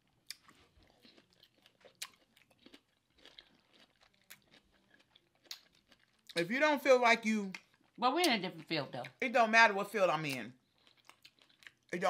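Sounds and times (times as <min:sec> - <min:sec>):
chewing with wet mouth clicks: 0:00.2 - 0:06.4, 0:10.2 - 0:12.0.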